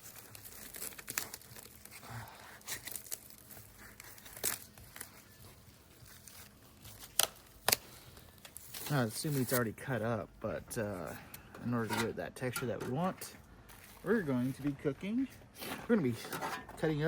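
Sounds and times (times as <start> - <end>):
plastic packaging crinkling and tearing: 0.0 - 10.1.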